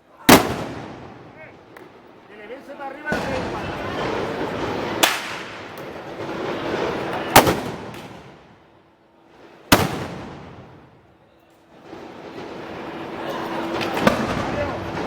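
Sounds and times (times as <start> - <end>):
blank gunshots with echo: 0.3 - 1.5, 3.0 - 8.6, 9.7 - 10.9, 12.1 - 15.0.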